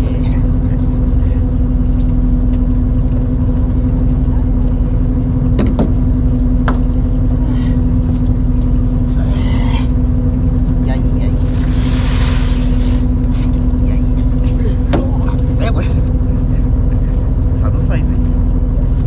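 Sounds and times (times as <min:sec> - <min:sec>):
boat engine rumbling: 0:00.0 - 0:19.0.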